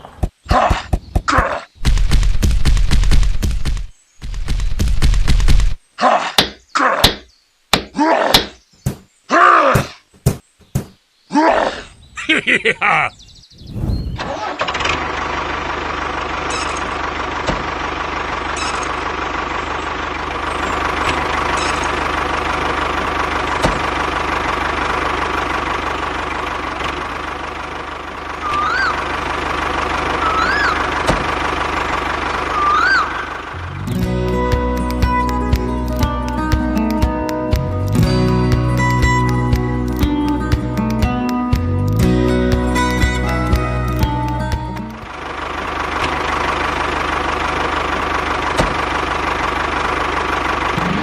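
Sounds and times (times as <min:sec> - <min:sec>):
engine running: 0:14.2 - 0:51.0
squeaky chirps: 0:16.4 - 0:17.0, 0:18.5 - 0:19.0, 0:21.4 - 0:22.0, 0:28.4 - 0:29.1, 0:30.2 - 0:30.9, 0:32.5 - 0:33.4.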